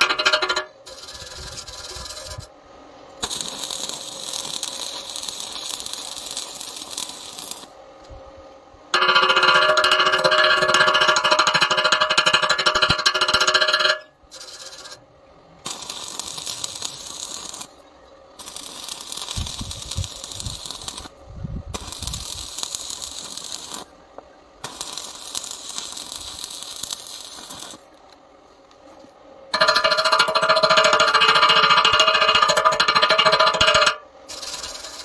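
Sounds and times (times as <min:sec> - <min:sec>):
welding arc crackling: 0:00.0 - 0:02.5, 0:03.2 - 0:07.8, 0:09.0 - 0:15.0, 0:15.6 - 0:17.8, 0:18.4 - 0:21.2, 0:21.8 - 0:23.9, 0:24.6 - 0:28.0, 0:29.6 - 0:35.0
steady buzzing: 0:09.0 - 0:15.0, 0:29.6 - 0:35.0.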